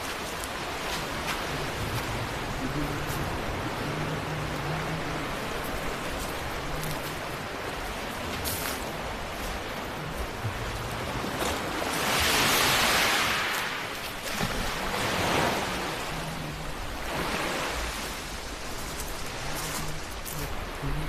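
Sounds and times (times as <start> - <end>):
sea waves washing ashore: 0.0 - 21.0.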